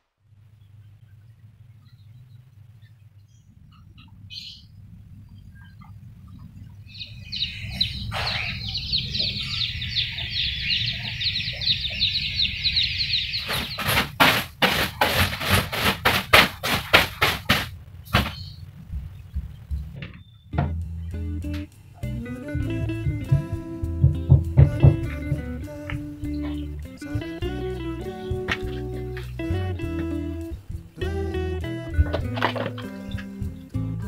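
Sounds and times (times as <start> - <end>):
steady low hum: 0.0 - 34.0
small birds chirping: 0.4 - 16.1, 17.8 - 34.0
short noisy strokes: 13.1 - 18.6.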